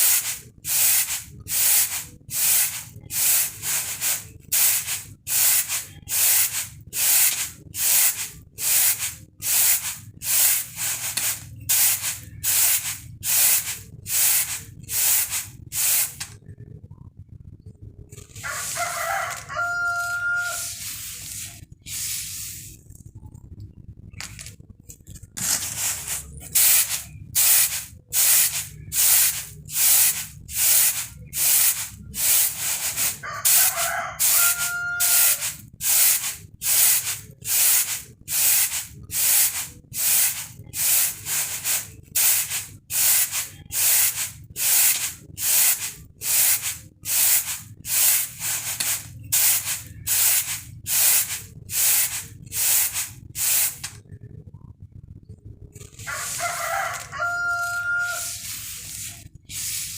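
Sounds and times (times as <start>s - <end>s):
rice swishing on a bamboo tray: 0.0s - 16.2s, 56.1s - 59.9s.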